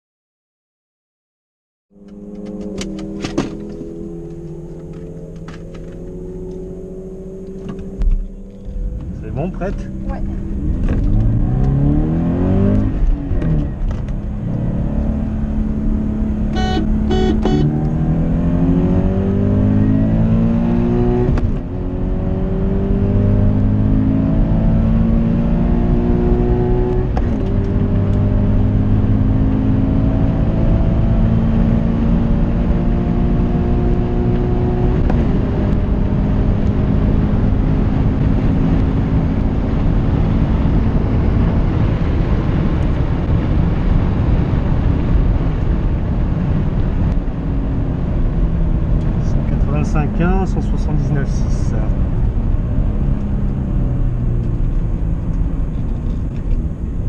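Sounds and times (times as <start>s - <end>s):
car engine accelerating: 1.9s - 57.0s
high beeps: 16.6s - 17.8s.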